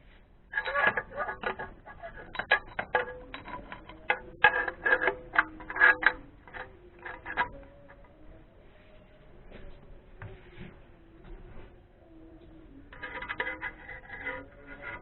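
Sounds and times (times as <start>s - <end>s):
hand tools clicking on metal: 0.5s - 8.0s.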